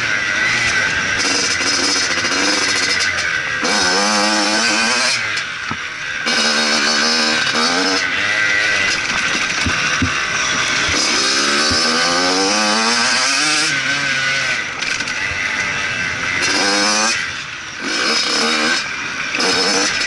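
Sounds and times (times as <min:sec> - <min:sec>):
dirt bike engine revving: 0:00.0 - 0:20.0
sharp knocks: 0:09.0 - 0:12.1.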